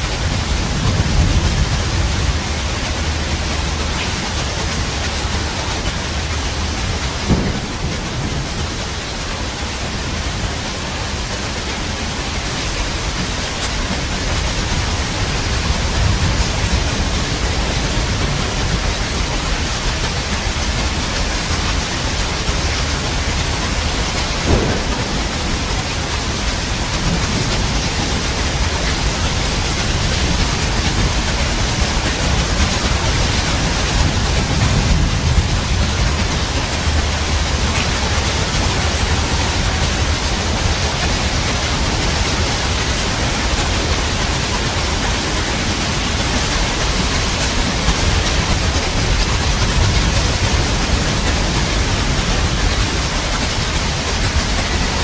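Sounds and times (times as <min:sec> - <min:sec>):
heavy rain: 0:00.0 - 0:55.0
thunder rumbling: 0:00.2 - 0:04.0, 0:04.7 - 0:10.6, 0:20.2 - 0:55.0
sharp thunder cracks: 0:07.2 - 0:08.8, 0:24.3 - 0:29.3.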